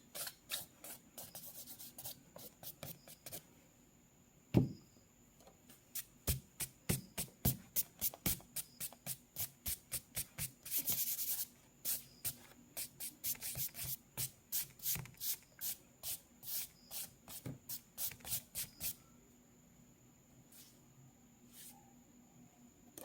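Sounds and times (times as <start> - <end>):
pencil strokes scratching paper: 0.2 - 3.4.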